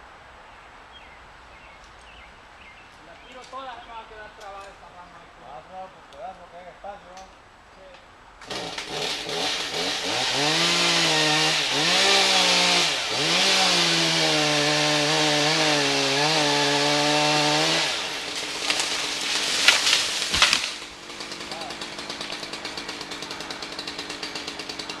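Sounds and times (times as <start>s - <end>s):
sharp wood cracks: 8.4s - 10.0s, 11.9s - 25.0s
chainsaw cutting branch: 8.4s - 25.0s.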